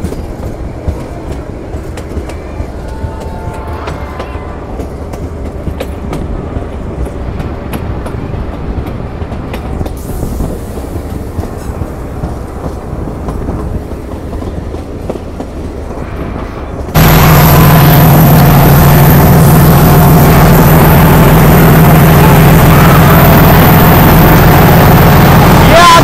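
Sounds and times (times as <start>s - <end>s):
wheels clicking over rail joints: 0.0s - 17.0s
diesel locomotive engine: 0.0s - 26.0s
train carriages rumbling: 0.0s - 26.0s.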